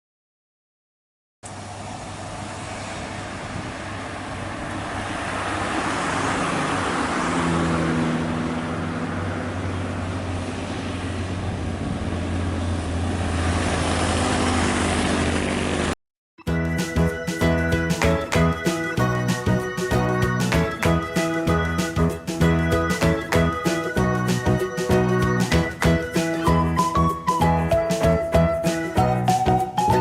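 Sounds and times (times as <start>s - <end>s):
rushing road noise: 1.4s - 16.0s
vehicle engine hum: 1.4s - 16.0s.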